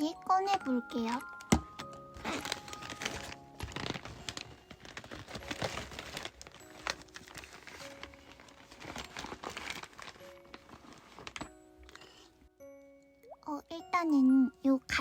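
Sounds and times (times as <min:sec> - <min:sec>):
soft background music: 0:00.0 - 0:15.0
packaging crinkling: 0:00.4 - 0:12.3.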